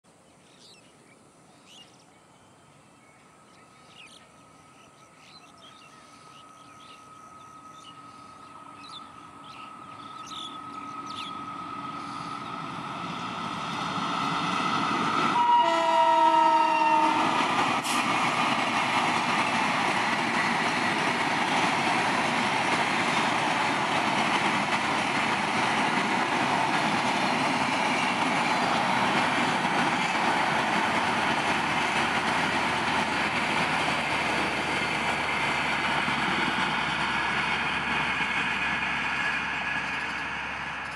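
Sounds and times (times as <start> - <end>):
train approaching at speed: 1.6 - 40.9
train horn blast: 15.3 - 18.0.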